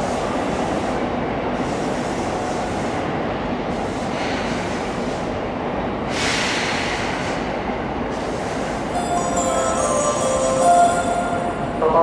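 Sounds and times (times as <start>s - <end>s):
short burst of hissing: 6.1s - 7.5s
electric train humming: 7.0s - 12.0s.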